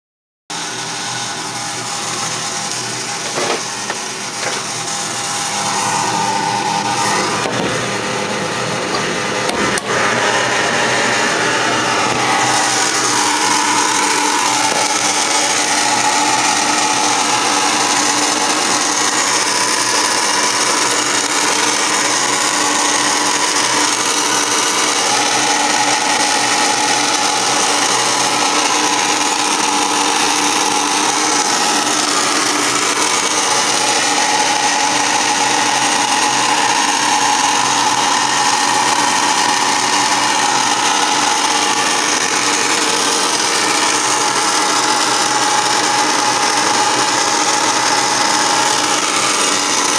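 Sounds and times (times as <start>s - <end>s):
furnace mechanical whirring: 0.6s - 49.9s
low hum: 1.3s - 31.8s.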